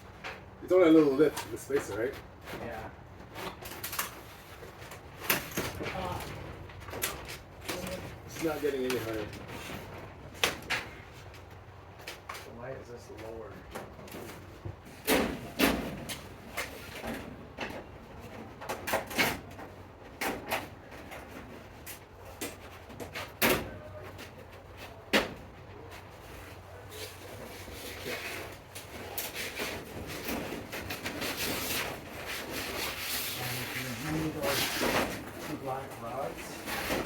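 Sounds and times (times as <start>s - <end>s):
parts scraping against each other: 26.3s - 37.0s.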